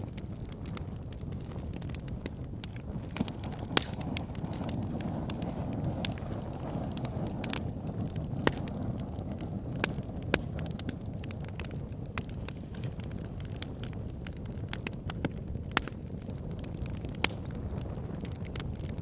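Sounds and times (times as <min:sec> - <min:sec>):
logs crackling and popping: 0:00.0 - 0:19.0
low rumble of flames: 0:00.0 - 0:19.0.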